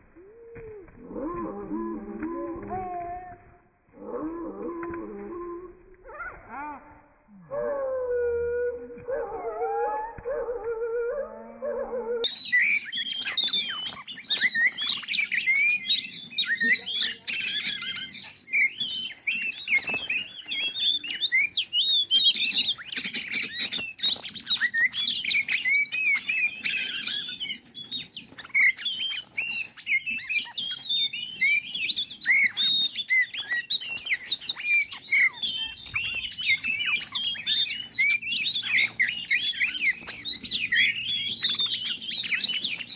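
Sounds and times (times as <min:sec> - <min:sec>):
bird song chirps and whistles: 0:08.6 - 0:42.9.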